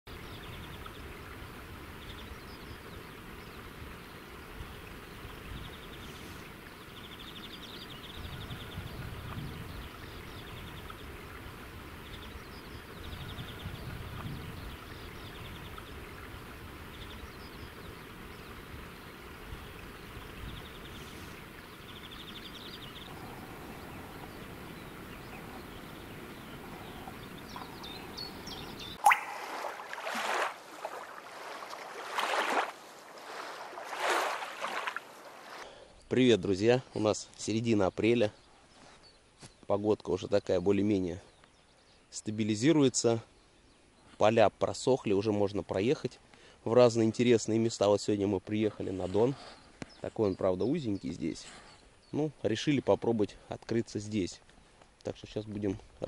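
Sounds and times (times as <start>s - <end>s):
songbird trilling: 0.1s - 30.5s
steady rushing hiss: 13.9s - 29.0s.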